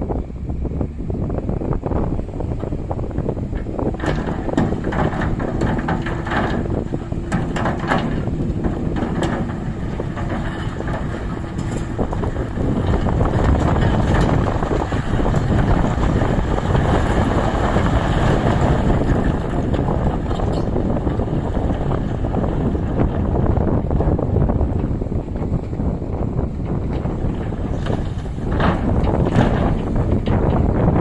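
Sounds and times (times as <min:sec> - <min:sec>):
excavator diesel engine running: 0:00.1 - 0:31.0
knocks: 0:26.6 - 0:30.8.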